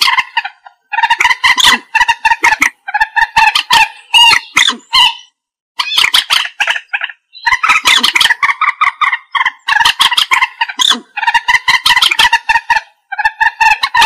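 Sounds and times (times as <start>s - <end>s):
moorhen calling: 0.0s - 14.0s.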